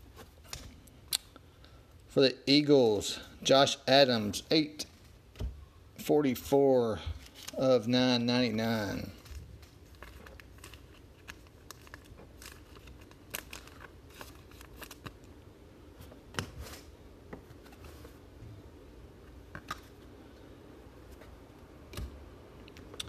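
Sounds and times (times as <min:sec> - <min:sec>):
trading cards rustling and clicking: 0:08.6 - 0:15.3.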